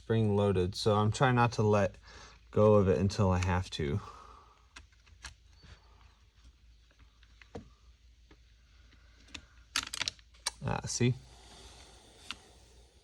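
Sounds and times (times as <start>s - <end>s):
clicks of plastic parts: 8.3s - 10.6s.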